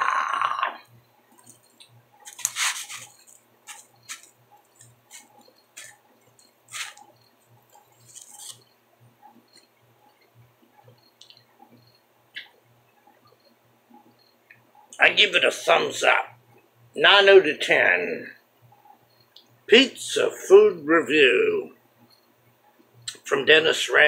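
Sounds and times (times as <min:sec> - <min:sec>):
person chewing pizza: 0:02.3 - 0:06.0, 0:07.7 - 0:08.6.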